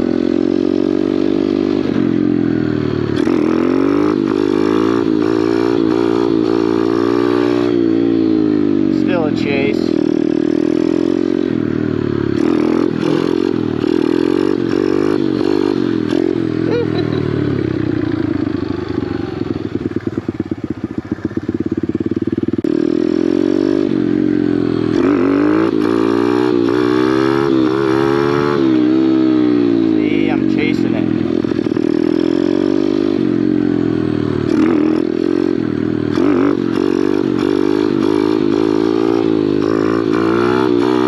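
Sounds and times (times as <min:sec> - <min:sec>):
motorbike engine idling: 0:00.0 - 0:03.3, 0:07.7 - 0:23.2, 0:23.8 - 0:25.0, 0:28.8 - 0:40.0
motorbike engine revving: 0:00.0 - 0:41.0.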